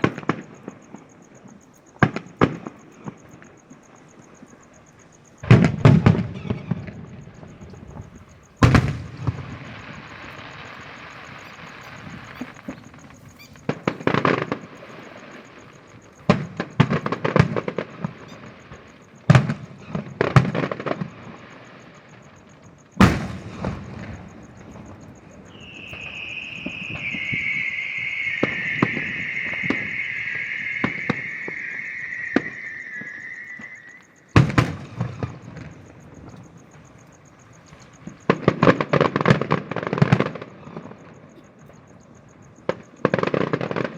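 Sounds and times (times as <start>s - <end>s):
fireworks crackling bangs: 0.0s - 43.9s
long high screech dropping in pitch: 25.6s - 34.1s.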